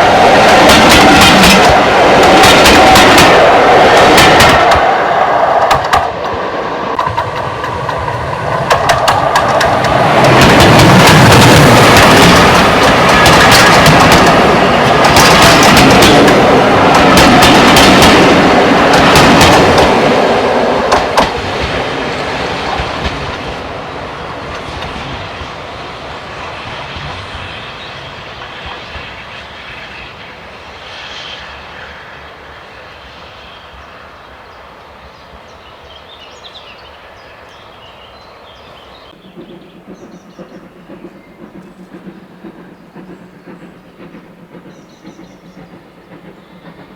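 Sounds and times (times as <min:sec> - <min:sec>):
steam train passing: 0:00.0 - 0:46.9
wheels clicking over rail joints: 0:00.3 - 0:05.0, 0:05.6 - 0:25.6.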